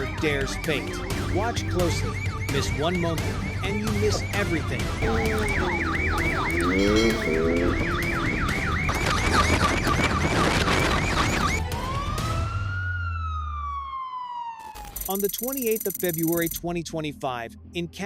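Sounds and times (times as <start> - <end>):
siren winding down: 5.0 - 10.0
police siren yelp: 5.0 - 14.7.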